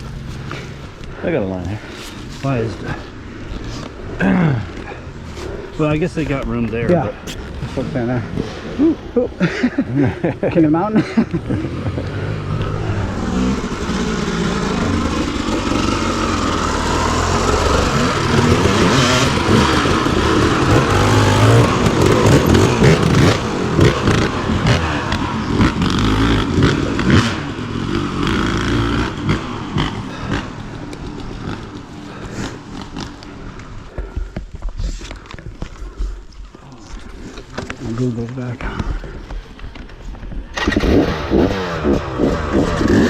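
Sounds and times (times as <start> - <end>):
dirt bike engine revving: 1.8 - 33.8, 40.5 - 43.0
rocks and tyre clattering: 9.7 - 43.0.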